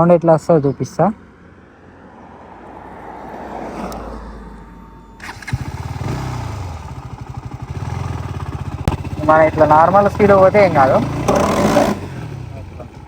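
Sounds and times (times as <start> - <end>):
motorcycle engine pulsing: 5.0 - 13.0.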